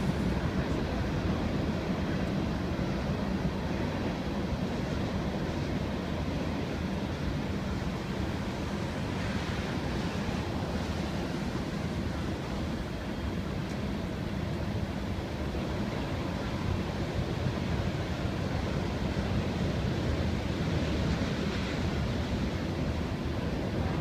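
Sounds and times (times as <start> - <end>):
freight train wheels rumbling on rails: 0.0 - 24.0.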